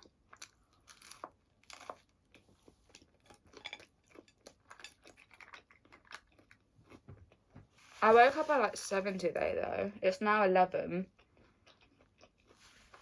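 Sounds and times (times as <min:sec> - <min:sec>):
chewing crunches: 0:00.0 - 0:07.5, 0:11.1 - 0:13.0.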